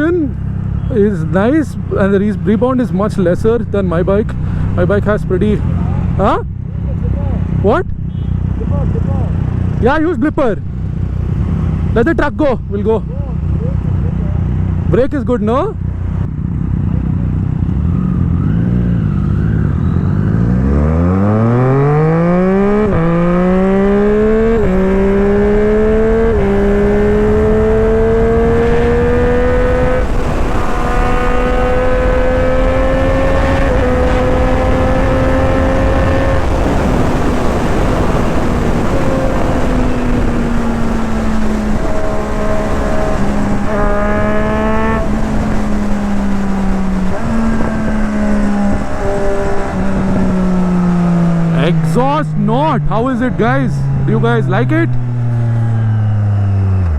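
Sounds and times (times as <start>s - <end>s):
motorcycle engine revving: 0.0s - 56.9s
wind rushing over microphone: 17.4s - 56.7s.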